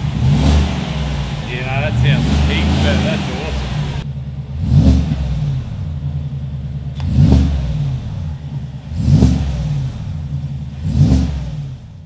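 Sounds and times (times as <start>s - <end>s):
engine idling and revving: 0.0s - 12.0s.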